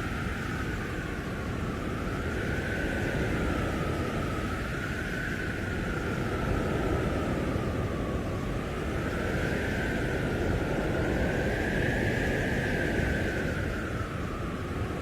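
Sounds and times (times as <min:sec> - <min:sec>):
howling blizzard wind: 0:00.0 - 0:15.0.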